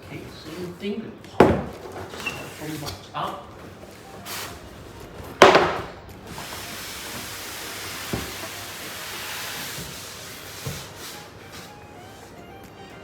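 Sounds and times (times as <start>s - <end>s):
wrapping rustling: 1.7s - 5.4s.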